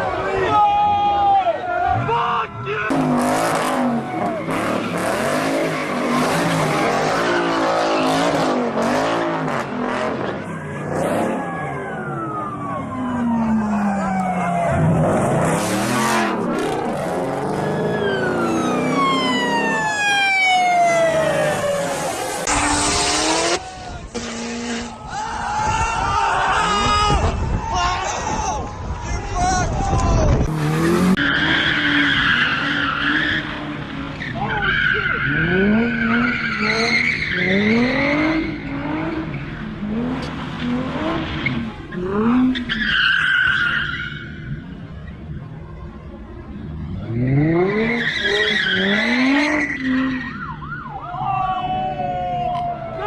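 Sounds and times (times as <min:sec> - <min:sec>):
car engine revving: 0:02.9 - 0:12.6, 0:13.2 - 0:25.0, 0:30.3 - 0:43.0
siren wailing: 0:10.4 - 0:23.8, 0:47.0 - 0:53.0.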